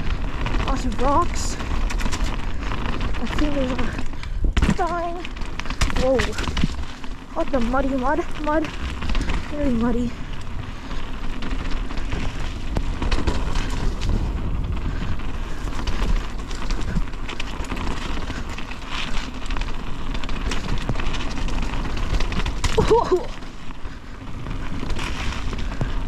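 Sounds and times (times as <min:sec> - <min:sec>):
low rumble: 0:00.0 - 0:19.4
bike rattling over bumps: 0:00.0 - 0:26.0
tyres on wet dirt: 0:00.0 - 0:26.0.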